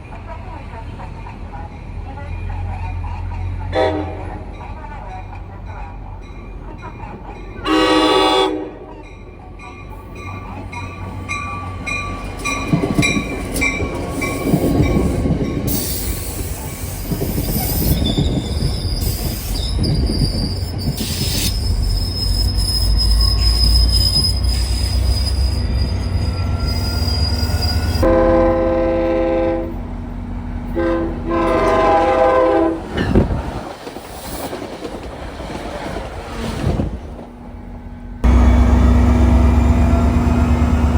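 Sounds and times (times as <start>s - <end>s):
train rumbling on rails: 0.0s - 40.9s
train horn blasts: 3.7s - 4.5s, 7.6s - 8.9s, 25.5s - 29.9s, 30.7s - 33.1s
train wheels squealing: 10.1s - 28.0s.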